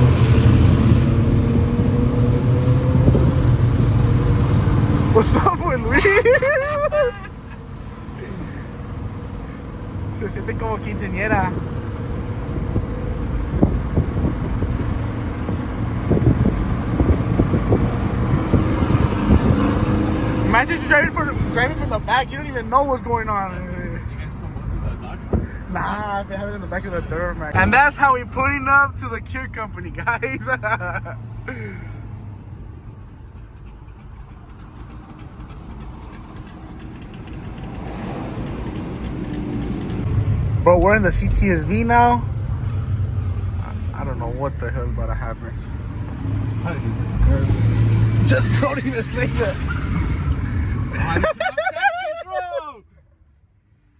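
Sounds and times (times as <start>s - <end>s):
car engine and road noise: 0.0s - 53.9s.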